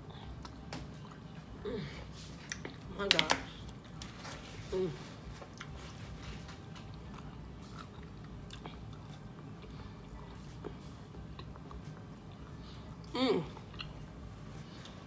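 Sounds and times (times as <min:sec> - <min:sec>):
person chewing: 0:05.4 - 0:06.1, 0:06.7 - 0:12.6, 0:13.5 - 0:14.2.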